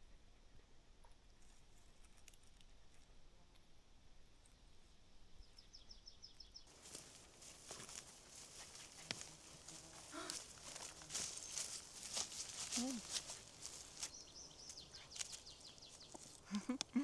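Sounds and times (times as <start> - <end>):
bird chirping: 5.4 - 17.0
soft rustling hiss: 6.6 - 17.0.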